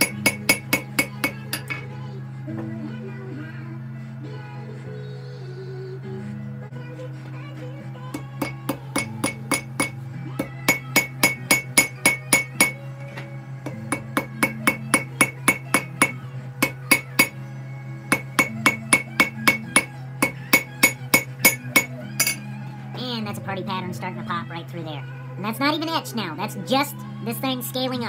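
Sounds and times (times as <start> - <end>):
hammer ringing on anvil: 0.0 - 1.9, 8.4 - 12.9, 13.7 - 17.4, 18.1 - 22.5.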